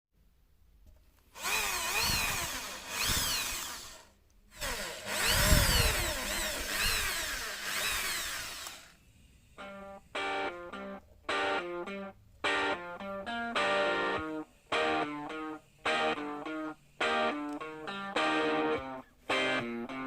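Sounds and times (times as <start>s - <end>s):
power tool running: 1.4s - 9.0s
plucked guitar music: 9.6s - 20.0s.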